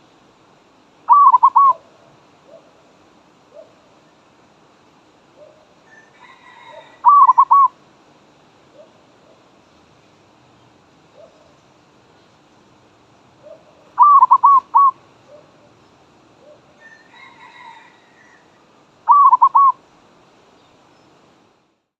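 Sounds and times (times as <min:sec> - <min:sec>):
dove cooing: 0:01.1 - 0:02.8, 0:05.4 - 0:07.8, 0:11.2 - 0:11.6, 0:13.4 - 0:15.8, 0:16.4 - 0:19.8.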